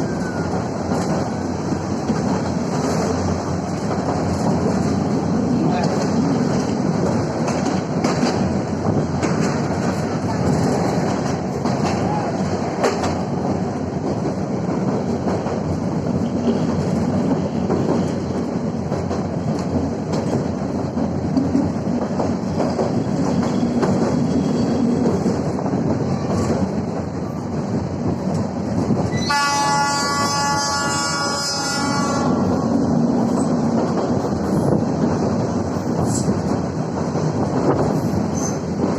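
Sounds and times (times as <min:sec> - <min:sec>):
train rumbling on track: 0:00.0 - 0:38.9
wheels clacking over rail joints: 0:00.0 - 0:38.9
train horn blast: 0:29.2 - 0:32.5.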